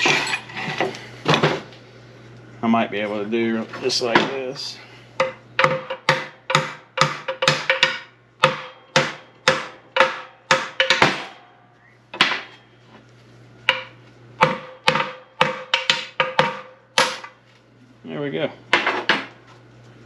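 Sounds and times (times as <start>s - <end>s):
faint steady hum: 0.0s - 20.0s
hammer striking steel: 5.2s - 11.6s, 13.7s - 17.3s.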